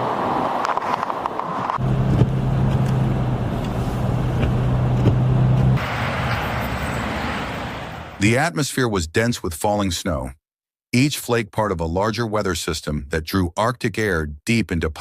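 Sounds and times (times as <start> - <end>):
rushing noise: 0.0 - 8.2
vehicle engine running: 1.8 - 6.4.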